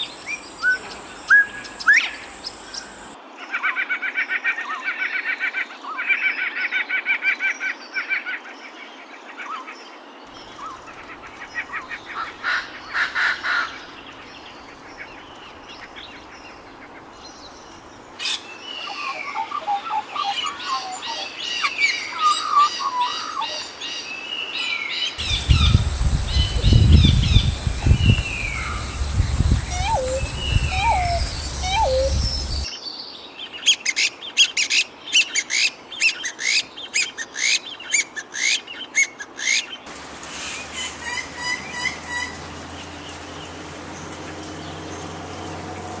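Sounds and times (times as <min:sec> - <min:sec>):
birds chirping and whistling: 0:00.0 - 0:03.2, 0:25.2 - 0:32.7.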